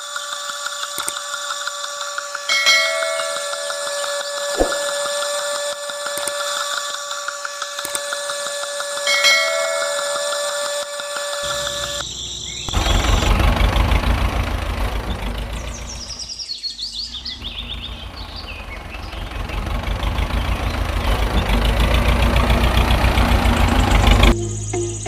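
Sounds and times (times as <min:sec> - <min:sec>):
small motor pulsing chatter: 0:00.0 - 0:13.7.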